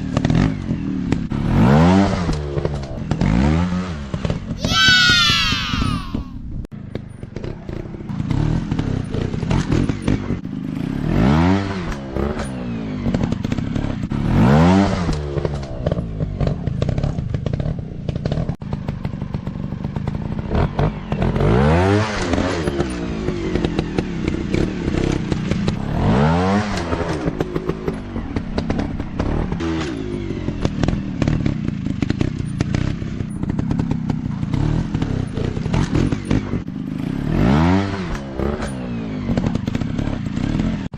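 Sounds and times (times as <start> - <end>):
dirt bike engines revving: 0.2 - 6.3.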